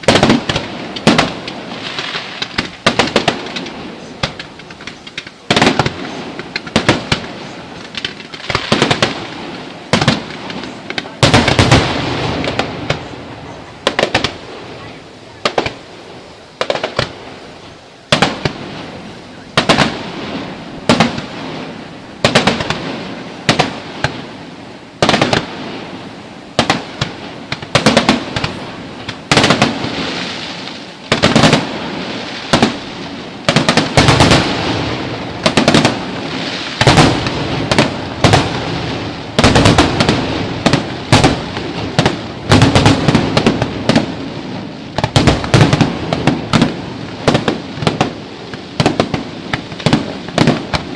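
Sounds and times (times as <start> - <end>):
firework bangs: 0.0 - 50.9
firework crackling: 0.0 - 50.9.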